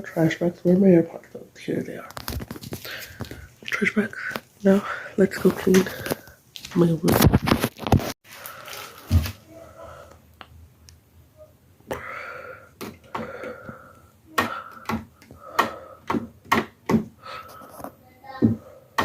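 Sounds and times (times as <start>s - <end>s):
rustling: 2.0s - 9.6s
footsteps on indoor floor: 8.8s - 9.4s.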